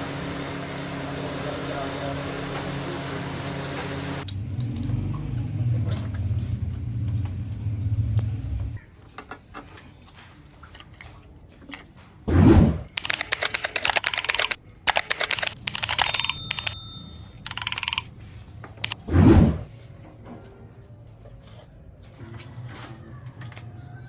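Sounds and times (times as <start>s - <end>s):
rapid clicking and rattling: 13.0s - 16.8s, 17.5s - 18.1s.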